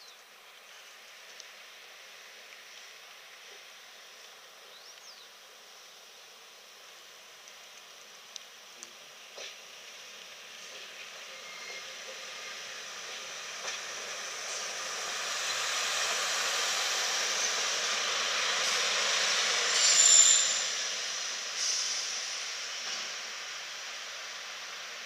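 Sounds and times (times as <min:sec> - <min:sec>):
train wheels rushing on rails: 0:09.3 - 0:25.0
high wheel squeal: 0:11.3 - 0:12.6, 0:19.5 - 0:21.0.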